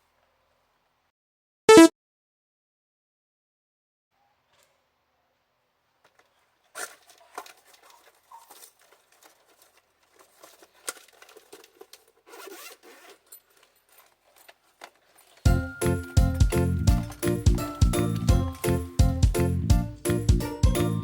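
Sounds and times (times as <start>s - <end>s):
faint rustling and crinkling: 4.2s - 15.5s.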